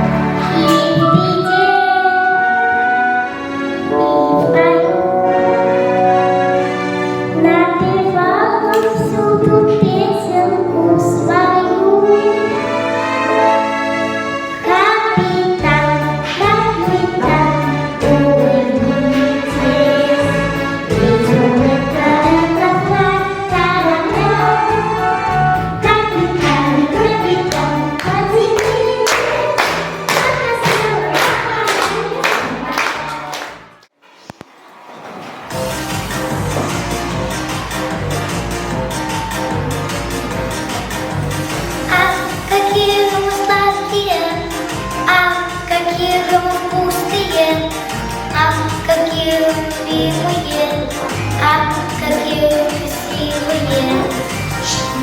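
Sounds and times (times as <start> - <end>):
instrumental backing music: 0.0 - 33.9, 35.4 - 55.0
child singing: 0.4 - 2.4, 3.9 - 5.2, 7.4 - 12.5, 14.6 - 25.1, 25.8 - 33.4, 41.9 - 55.0
person singing: 0.4 - 2.8, 3.8 - 5.9, 41.9 - 55.0
repeating bass line: 15.6 - 33.7, 35.6 - 42.3
percussive beats: 25.8 - 33.7, 35.5 - 43.3.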